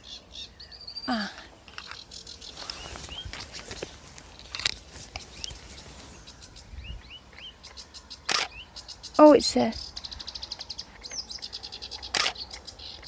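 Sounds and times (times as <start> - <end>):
bird singing rising chirps: 0.0 - 4.0, 4.8 - 13.0
sharp click: 7.4 - 8.6, 12.0 - 12.6.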